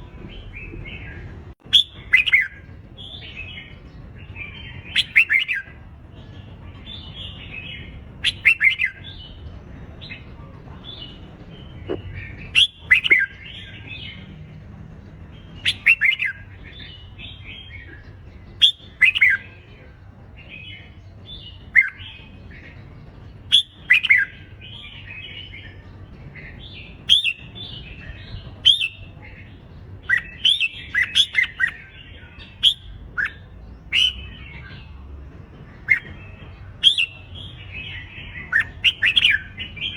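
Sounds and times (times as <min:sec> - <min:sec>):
bulbul singing chirps and whistles: 0:00.4 - 0:05.8, 0:06.9 - 0:09.4, 0:11.0 - 0:14.2, 0:15.6 - 0:35.0, 0:35.8 - 0:39.9.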